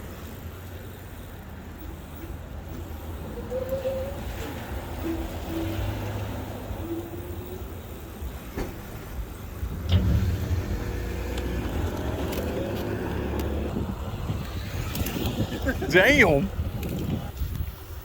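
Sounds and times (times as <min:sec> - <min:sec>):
wind rumbling on microphone: 0:09.0 - 0:18.0.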